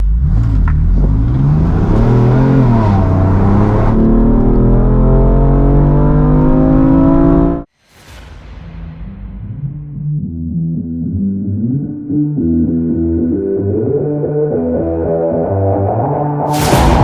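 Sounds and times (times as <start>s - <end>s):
car engine accelerating hard: 0.0s - 7.7s.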